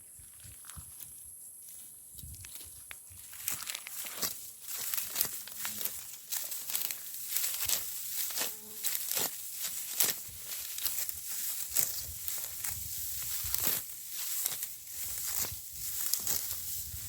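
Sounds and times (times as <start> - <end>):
dry wheat stalks rustling: 0.1 - 17.0
stalks snapping: 3.5 - 16.6.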